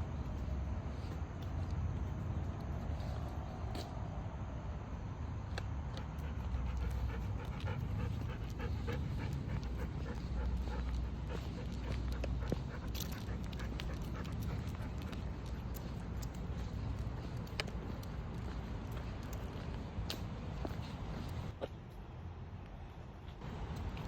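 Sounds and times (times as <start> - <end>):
steady low rumble: 0.0 - 24.0
dog panting: 5.9 - 21.5.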